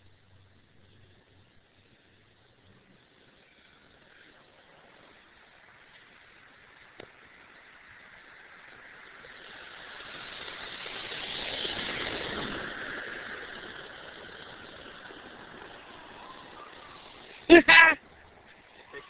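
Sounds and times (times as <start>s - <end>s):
vehicle passing: 7.5s - 19.0s.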